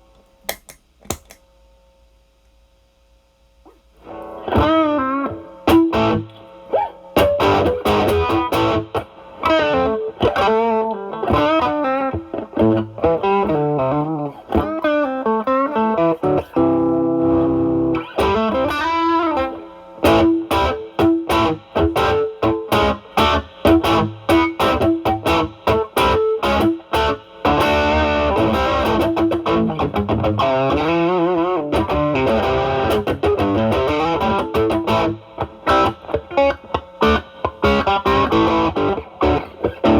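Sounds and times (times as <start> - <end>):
overdriven electric guitar lead: 4.0 - 39.9.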